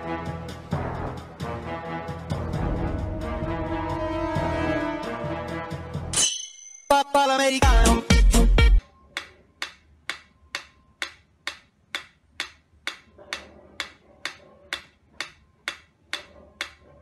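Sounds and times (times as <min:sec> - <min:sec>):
loud music: 0:00.0 - 0:06.2, 0:06.9 - 0:08.8
metronome ticking: 0:09.1 - 0:16.8.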